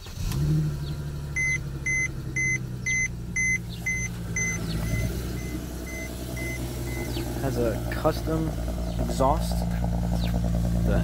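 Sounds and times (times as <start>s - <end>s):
car engine idling: 0.0s - 11.0s
dashboard warning chime beeping: 1.4s - 7.2s.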